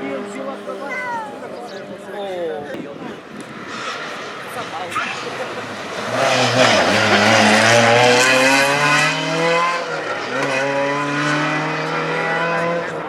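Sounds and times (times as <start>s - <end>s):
rally car engine accelerating: 3.7s - 13.0s.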